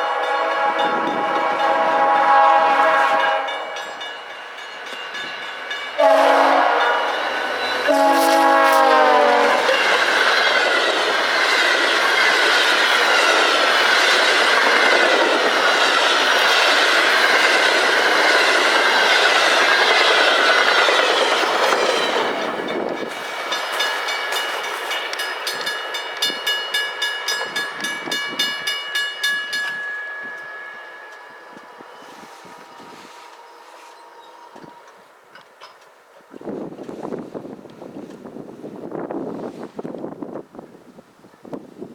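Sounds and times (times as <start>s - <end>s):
train horn: 0.0s - 4.0s, 6.0s - 10.0s, 31.2s - 35.0s
train cars rushing past: 0.0s - 40.7s
wheels clicking over rail joints: 9.3s - 31.8s, 33.3s - 38.4s.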